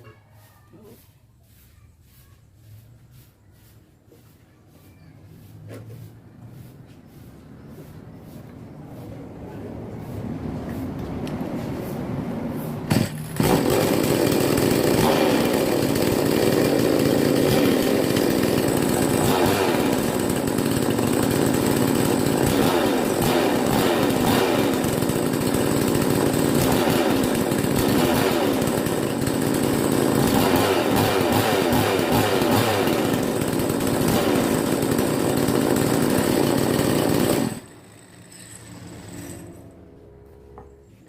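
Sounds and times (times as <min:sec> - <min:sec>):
chainsaw engine running: 0:12.9 - 0:39.6.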